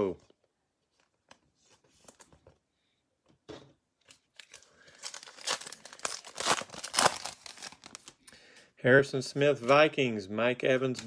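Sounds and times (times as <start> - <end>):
card pack wrapper tearing and crinkling: 4.1 - 8.2.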